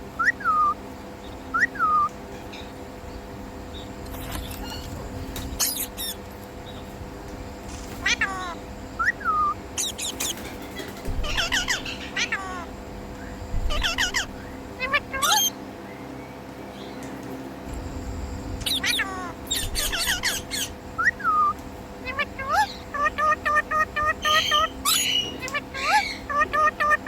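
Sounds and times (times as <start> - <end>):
parakeet squawking: 1.6 - 2.7, 5.6 - 6.2, 8.0 - 12.7, 13.5 - 15.6, 18.6 - 27.0.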